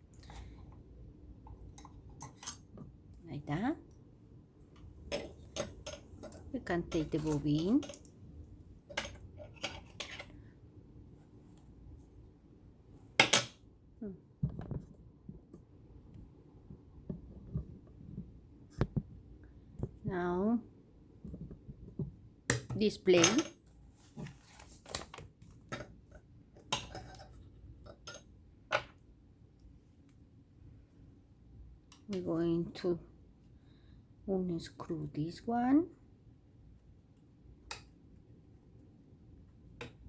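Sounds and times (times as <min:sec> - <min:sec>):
small metal parts clicking: 0:05.1 - 0:08.2.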